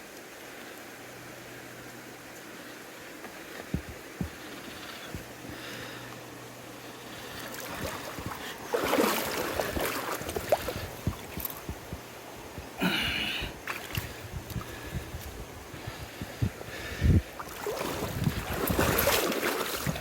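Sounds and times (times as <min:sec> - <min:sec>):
river water rushing: 0:00.0 - 0:14.1, 0:17.3 - 0:20.0
water splashing: 0:06.8 - 0:12.9, 0:17.4 - 0:20.0.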